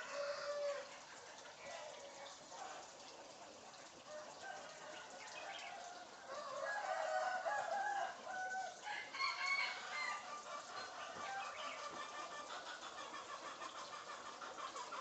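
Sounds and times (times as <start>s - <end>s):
bird calls with clucking notes: 8.6s - 15.0s.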